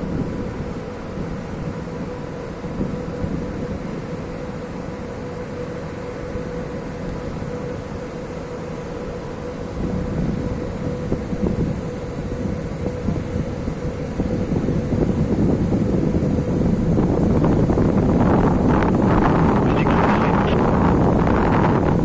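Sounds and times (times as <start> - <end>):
wind buffeting microphone: 0.0 - 4.8, 9.5 - 22.0
ship machinery droning: 0.0 - 22.0.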